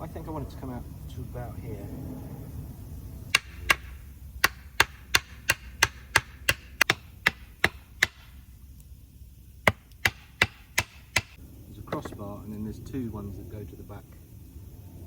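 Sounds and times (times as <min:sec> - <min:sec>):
axe chopping wood: 0:03.3 - 0:08.4, 0:09.7 - 0:11.4.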